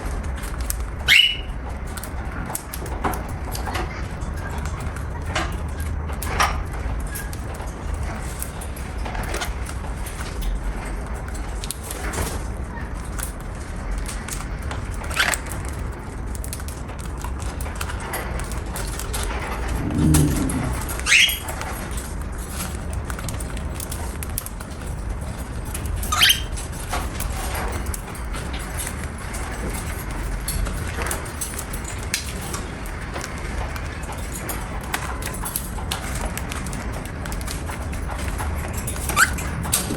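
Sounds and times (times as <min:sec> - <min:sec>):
cockatiel chirping: 0:01.1 - 0:01.5, 0:21.0 - 0:21.4
low rumble: 0:19.4 - 0:21.5, 0:39.4 - 0:39.9.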